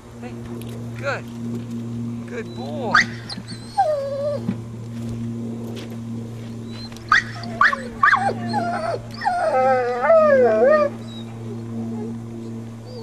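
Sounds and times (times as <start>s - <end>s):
dog whining and yelping: 2.5s - 4.5s, 7.1s - 12.1s.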